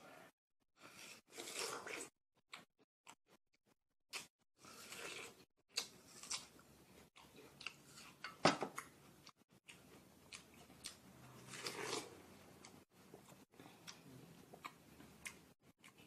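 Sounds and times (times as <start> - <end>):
biting and chewing watermelon: 4.1 - 16.0.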